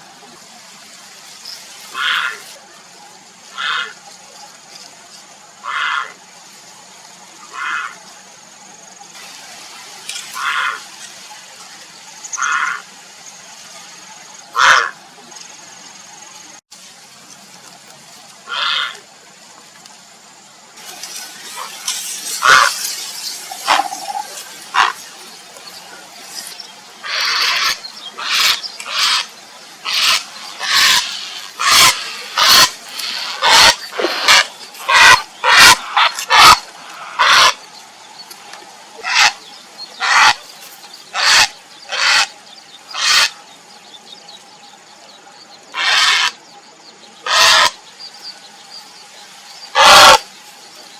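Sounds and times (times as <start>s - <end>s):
heron harsh calls: 3.5s - 4.0s, 5.6s - 6.2s, 7.5s - 8.0s, 10.4s - 10.8s, 12.4s - 12.8s, 14.6s - 15.0s, 18.5s - 19.0s, 22.4s - 22.8s, 23.6s - 25.0s, 27.0s - 37.6s, 39.0s - 39.4s, 40.0s - 40.4s, 41.1s - 42.3s, 42.9s - 43.4s, 45.8s - 46.4s, 47.2s - 47.8s, 49.8s - 50.2s.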